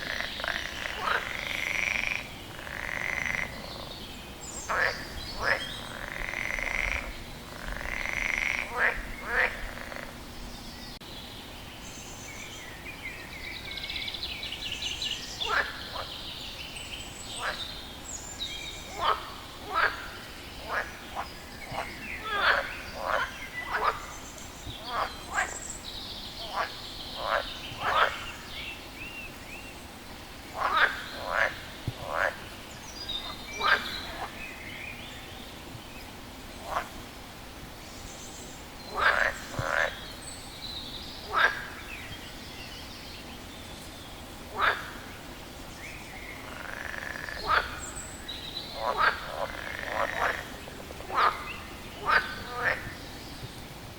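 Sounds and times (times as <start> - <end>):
frog croaking: 0.0 - 4.0, 4.6 - 10.2, 18.9 - 24.1, 26.4 - 28.3, 30.6 - 32.5, 33.3 - 34.4, 38.9 - 40.0, 41.3 - 41.8, 44.6 - 45.0, 46.4 - 47.9, 48.7 - 53.0.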